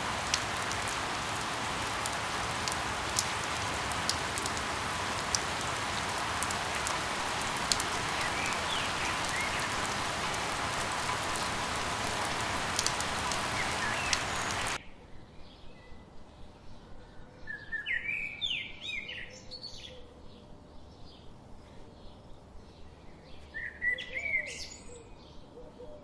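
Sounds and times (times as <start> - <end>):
rain falling: 0.0 - 14.8.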